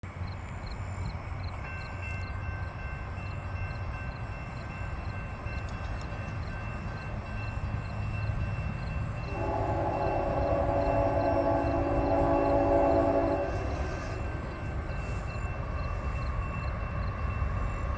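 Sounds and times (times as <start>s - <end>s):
diesel train rumbling: 0.0s - 17.9s
train air horn: 9.3s - 14.4s.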